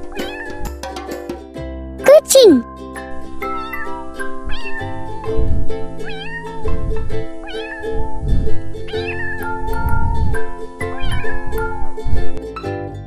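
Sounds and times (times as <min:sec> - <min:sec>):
cat meowing: 0:06.0 - 0:06.6, 0:07.4 - 0:08.0, 0:08.9 - 0:09.5, 0:11.0 - 0:11.7.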